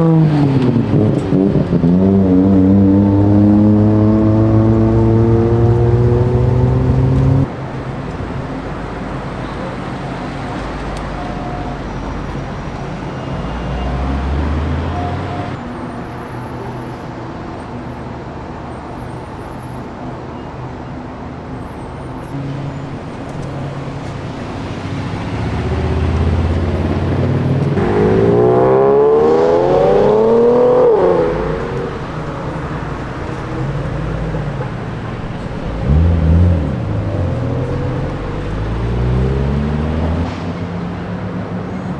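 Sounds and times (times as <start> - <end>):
car engine revving: 0.0 - 12.0, 12.8 - 15.6, 22.4 - 40.3
car engines moving slowly: 0.0 - 41.9.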